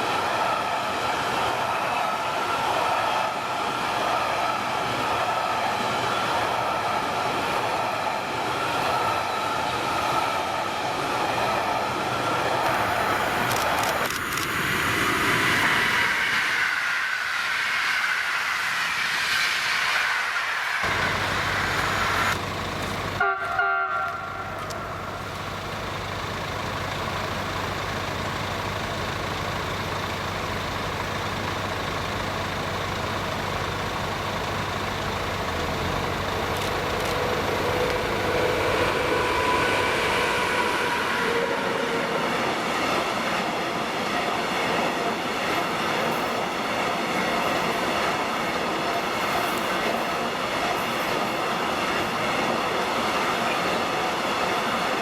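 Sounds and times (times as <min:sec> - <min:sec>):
train wheel and rail noise: 0:00.0 - 0:55.0
rising whining tone: 0:14.2 - 0:22.5, 0:35.5 - 0:43.8
short train horn toot: 0:23.2 - 0:25.1, 0:37.2 - 0:42.2.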